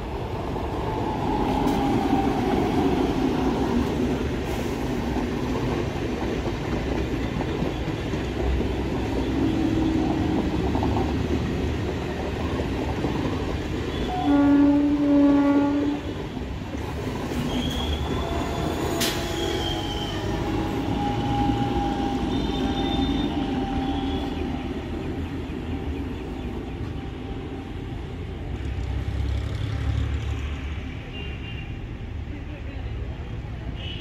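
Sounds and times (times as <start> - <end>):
train coaches rumbling past: 0.0 - 33.8
train horn blast: 13.9 - 16.3, 18.2 - 24.4
wheel squeals: 17.3 - 24.4.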